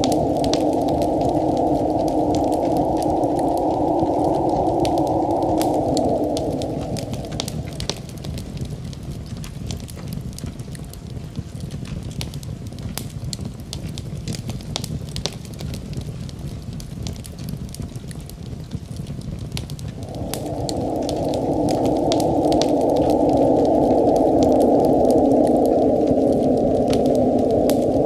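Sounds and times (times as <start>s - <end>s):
loud steady sound: 0.0s - 8.8s, 19.9s - 28.0s
fire crackling and popping: 0.0s - 28.0s
low rumble of fire: 0.0s - 28.0s.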